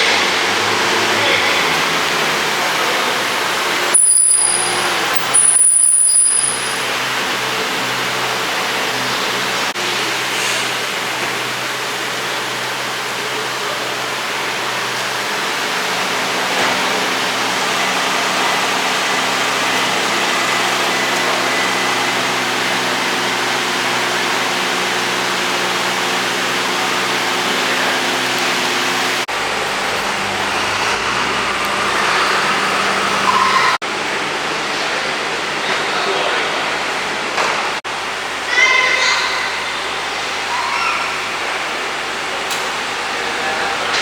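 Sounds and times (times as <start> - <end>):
city street traffic: 0.0 - 44.0
car engine running: 10.9 - 33.7.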